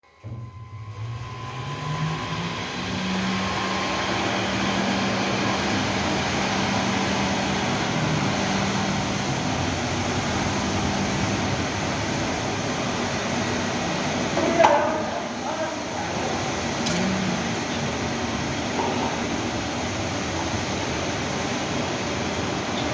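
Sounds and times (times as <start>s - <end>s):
rushing vacuum-like noise: 0.1s - 22.9s
floor scrubber motor hum: 0.2s - 22.9s.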